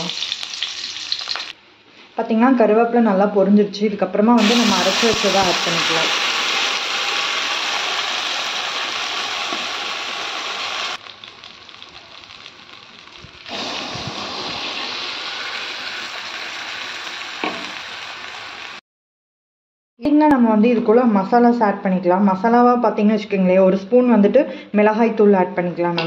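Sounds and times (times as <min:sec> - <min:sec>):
paste sizzling in hot oil: 0:00.0 - 0:01.6, 0:04.4 - 0:18.8
paste bubbling: 0:11.0 - 0:14.6.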